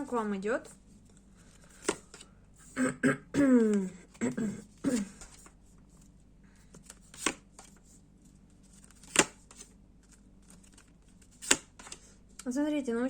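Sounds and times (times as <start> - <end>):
faint card rustles: 0.6 - 2.3, 3.7 - 12.3.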